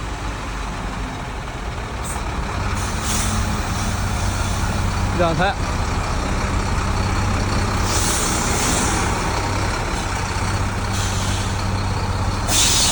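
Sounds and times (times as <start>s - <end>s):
diesel truck engine idling: 0.0s - 12.9s
compressed air hiss: 12.5s - 12.9s.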